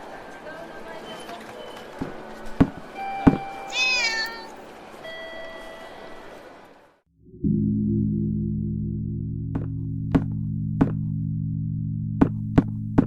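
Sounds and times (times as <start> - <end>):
cat meowing: 3.6 - 4.5.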